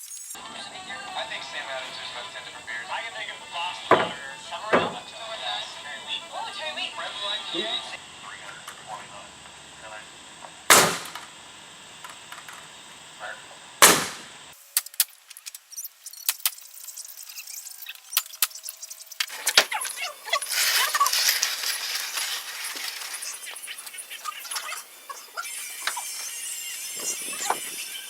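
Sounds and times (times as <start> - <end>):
loud sharp bang: 10.7 - 11.3, 13.8 - 14.3.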